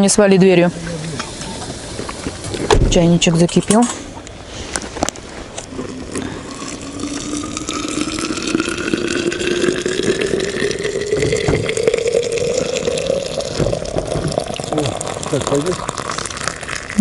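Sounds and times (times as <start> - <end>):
water pouring from kettle: 5.8 - 17.0.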